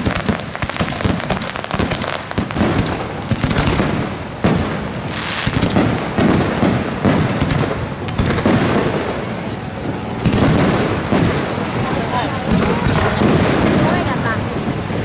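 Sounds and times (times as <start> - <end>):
fireworks crackling: 0.0 - 15.0
sharp firework bangs: 0.0 - 15.0.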